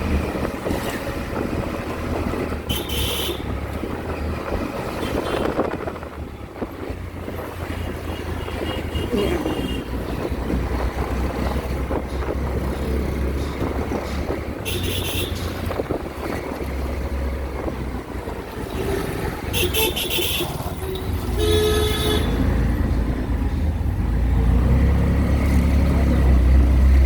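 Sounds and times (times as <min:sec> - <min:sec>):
wind buffeting microphone: 0:00.0 - 0:21.3
horn honk: 0:02.6 - 0:03.6, 0:14.6 - 0:15.5, 0:19.5 - 0:22.5.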